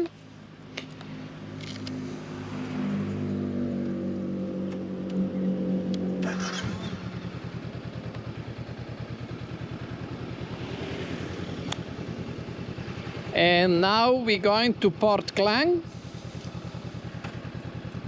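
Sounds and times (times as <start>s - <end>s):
motorcycle engine idling: 4.0s - 18.0s.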